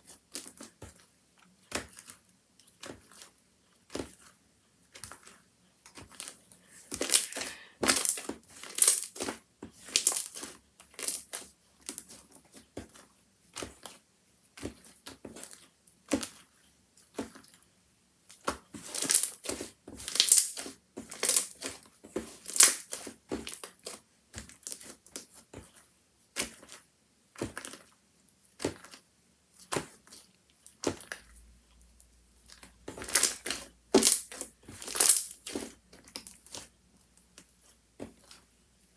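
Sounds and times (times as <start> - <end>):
slime squished by hand: 33.0 - 36.7.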